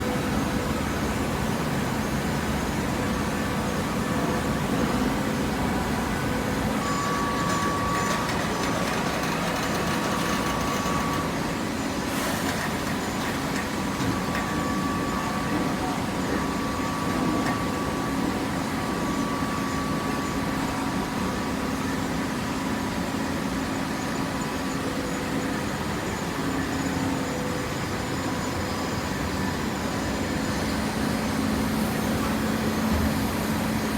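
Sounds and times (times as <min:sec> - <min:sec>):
baler machine hum: 0:00.0 - 0:21.1.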